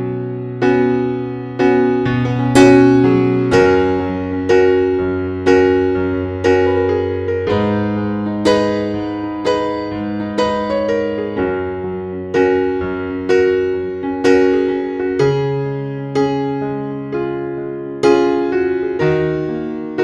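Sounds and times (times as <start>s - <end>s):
soft electric piano melody: 0.0s - 20.0s.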